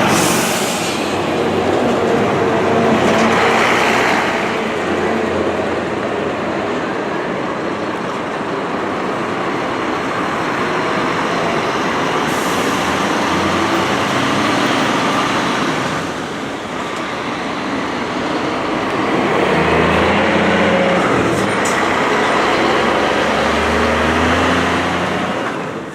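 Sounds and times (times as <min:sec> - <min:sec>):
road traffic noise: 0:00.0 - 0:25.9.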